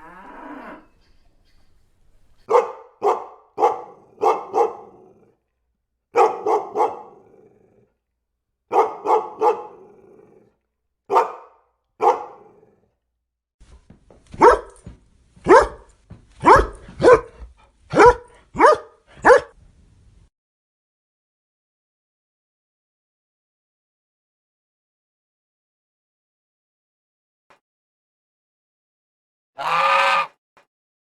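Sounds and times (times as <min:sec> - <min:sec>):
dog barking: 0:02.4 - 0:05.4, 0:06.1 - 0:07.8, 0:08.7 - 0:10.5, 0:11.1 - 0:12.9, 0:14.3 - 0:19.6.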